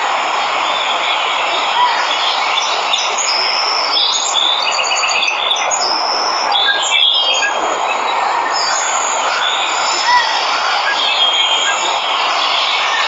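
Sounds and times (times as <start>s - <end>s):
falling water rushing: 0.0s - 13.0s
birds chirping and calling: 0.7s - 13.0s.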